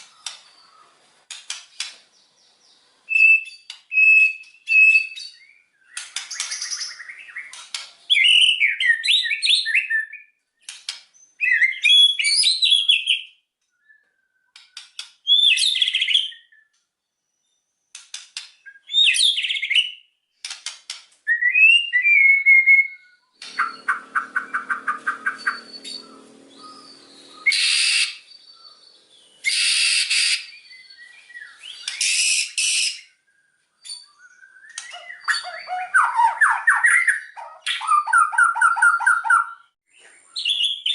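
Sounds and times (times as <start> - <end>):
bird clicking trills: 0.0 - 0.6, 5.9 - 8.0, 23.4 - 28.8
bird singing whistled phrases: 3.1 - 10.3, 11.3 - 14.6, 15.3 - 16.8, 21.3 - 40.9.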